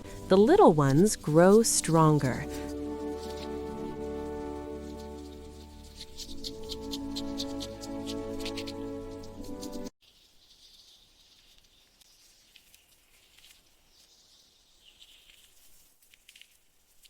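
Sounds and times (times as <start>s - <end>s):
background music: 0.0s - 9.9s.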